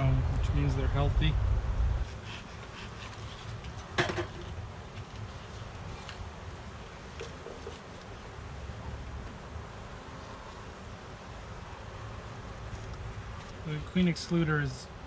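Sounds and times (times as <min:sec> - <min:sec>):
steady low rumble: 0:00.0 - 0:02.1.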